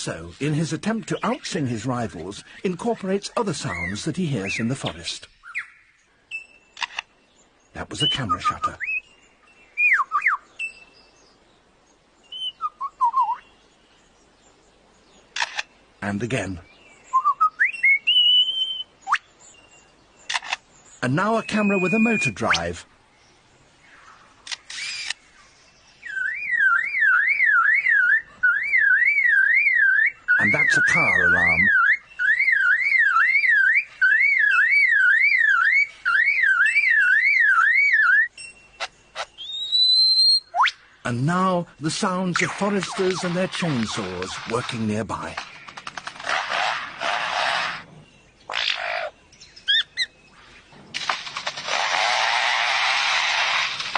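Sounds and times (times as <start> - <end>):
sharp bird clicks: 4.9 - 7.2, 15.3 - 15.8, 17.8 - 19.3, 20.2 - 20.7, 24.4 - 25.4, 42.4 - 47.8
lyrebird whistled notes: 9.8 - 10.9, 12.3 - 13.5, 17.1 - 19.3, 21.4 - 22.6, 26.0 - 40.8
lyrebird warbling notes: 26.0 - 41.2
bird imitating car alarm: 26.1 - 40.8.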